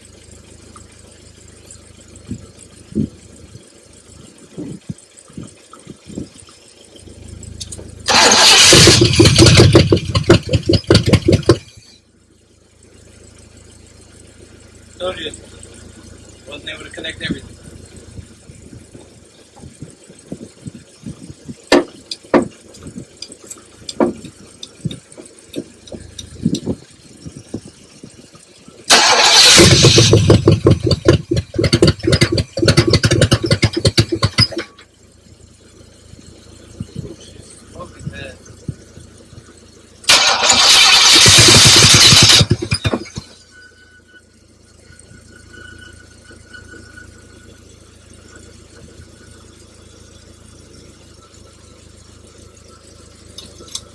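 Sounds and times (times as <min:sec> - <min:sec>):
car engine cranking and sputtering: 0:00.0 - 0:53.9.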